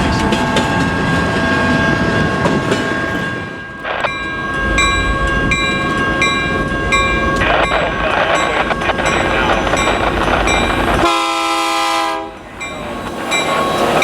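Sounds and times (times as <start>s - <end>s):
freight train rolling past: 0.0s - 14.0s
wheels clacking on rail: 0.0s - 14.0s.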